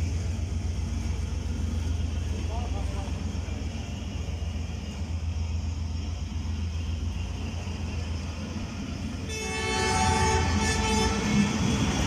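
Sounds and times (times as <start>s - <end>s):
train rumbling: 0.0s - 12.0s
train horn: 9.2s - 12.0s.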